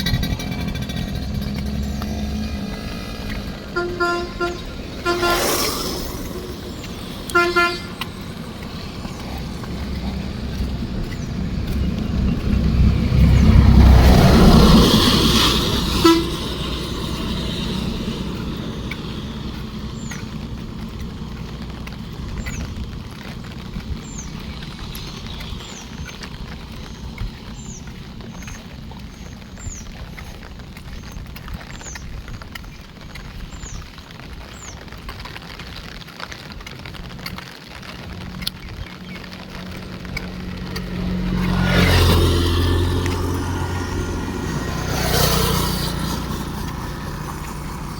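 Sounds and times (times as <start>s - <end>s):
vehicle passing: 0.0s - 30.0s, 37.4s - 47.9s
steady rain: 0.0s - 47.9s
horn toot: 3.7s - 8.3s, 14.0s - 17.5s.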